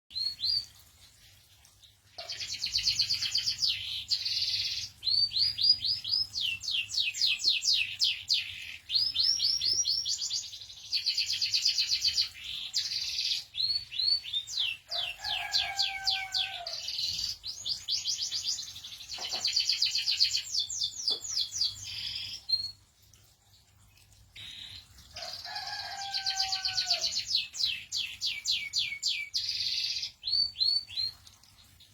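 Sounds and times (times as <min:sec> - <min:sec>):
canary singing trills: 0:02.2 - 0:22.8.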